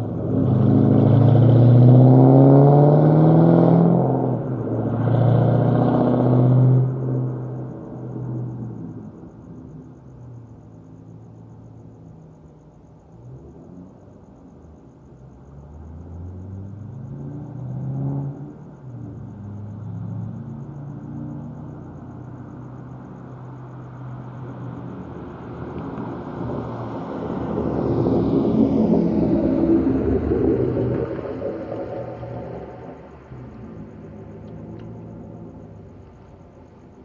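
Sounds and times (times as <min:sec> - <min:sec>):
car engine revving: 0:00.0 - 0:07.4, 0:23.6 - 0:36.4.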